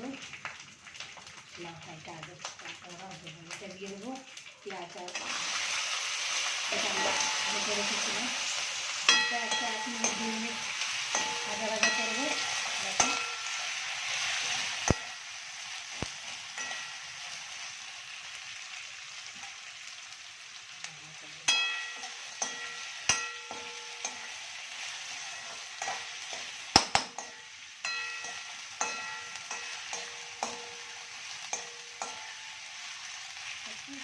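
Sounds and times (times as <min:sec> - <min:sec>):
onions sizzling in hot oil: 0:00.0 - 0:34.0
metal utensil knocking on pan: 0:06.8 - 0:07.8, 0:09.1 - 0:13.6, 0:16.6 - 0:17.1, 0:21.5 - 0:24.4, 0:25.2 - 0:32.5.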